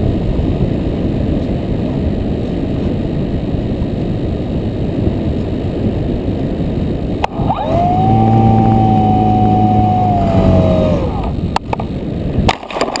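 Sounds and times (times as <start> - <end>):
drone motors whining: 7.2 - 11.4.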